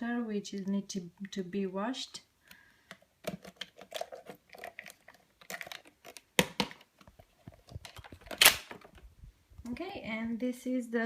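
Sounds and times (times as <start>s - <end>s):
plastic parts clicking and rattling: 2.9s - 9.1s.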